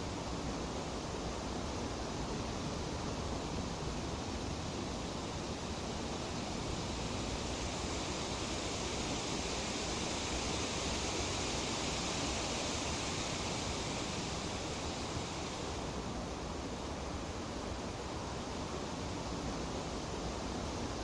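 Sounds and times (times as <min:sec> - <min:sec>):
leaves rustling in breeze: 0:04.0 - 0:16.8.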